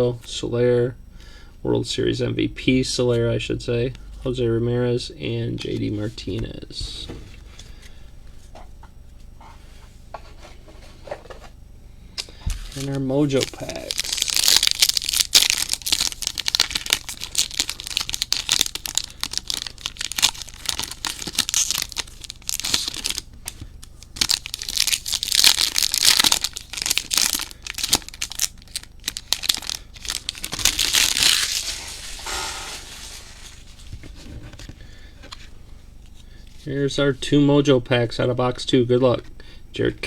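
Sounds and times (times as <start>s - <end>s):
card pack wrappers crinkling: 12.2s - 34.7s.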